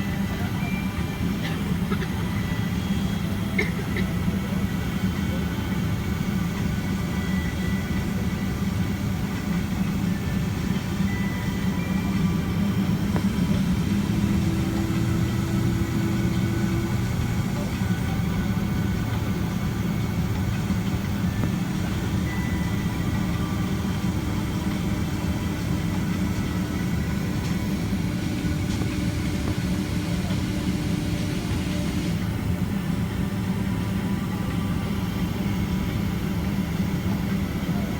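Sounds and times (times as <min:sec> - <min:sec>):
aircraft engine hum: 0:00.0 - 0:37.9
faint whining tones: 0:04.4 - 0:37.9.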